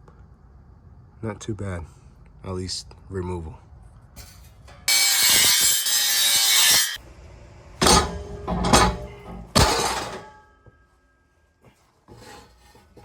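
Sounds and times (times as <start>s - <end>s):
metal pipe clanking: 4.2s - 7.0s, 7.8s - 10.6s
metal scraping on metal: 4.2s - 7.0s, 7.8s - 10.4s, 12.1s - 13.0s.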